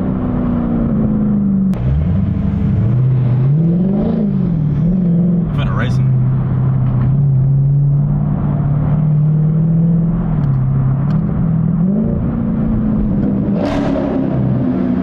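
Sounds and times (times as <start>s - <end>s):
car engine running: 4.8s - 7.1s.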